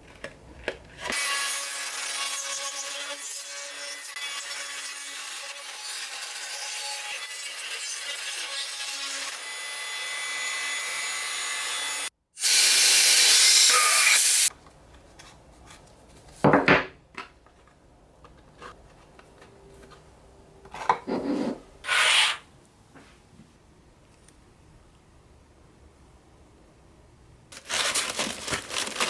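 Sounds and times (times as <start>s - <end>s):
scraping and rubbing: 17.6s - 20.0s, 20.7s - 22.4s.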